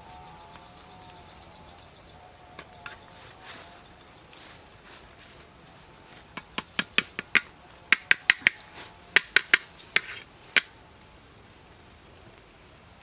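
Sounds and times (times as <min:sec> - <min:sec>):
sharp irregular knocks: 0:06.2 - 0:10.8.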